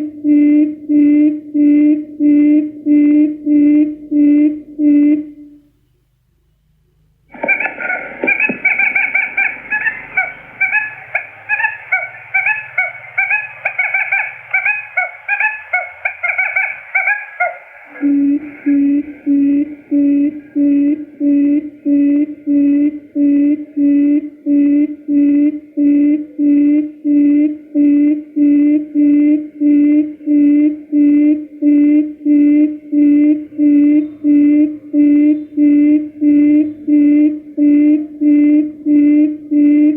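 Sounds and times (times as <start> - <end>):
low pulsed hoots: 0.0 - 5.7, 7.3 - 39.9
rapid chattering of high calls: 7.3 - 19.4.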